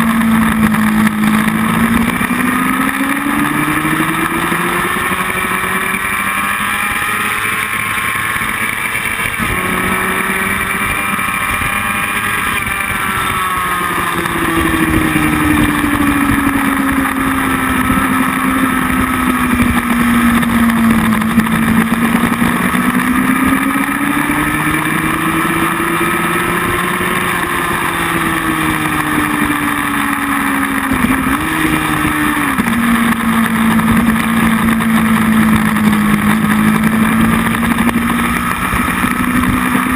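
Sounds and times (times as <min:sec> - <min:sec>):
motorcycle engine revving: 0:00.0 - 0:39.9
wind noise: 0:09.0 - 0:39.9.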